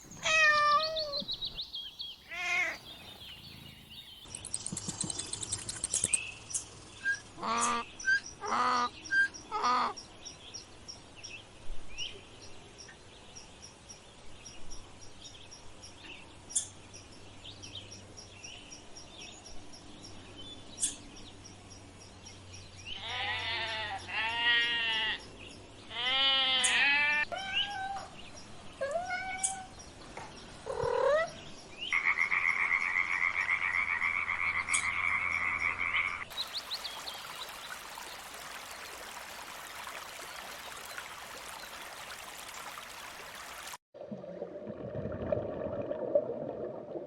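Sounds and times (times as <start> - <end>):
small bird chirping: 0.0 - 8.4
cat meowing: 0.2 - 1.3, 2.3 - 2.8
bleat: 2.3 - 2.8, 23.0 - 25.2, 25.9 - 27.7.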